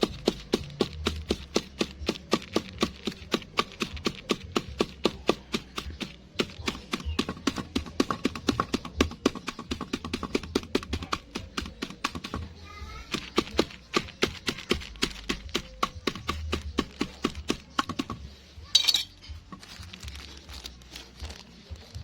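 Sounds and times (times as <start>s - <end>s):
feed pellets crushed cracking: 0.0s - 8.8s, 18.8s - 22.0s.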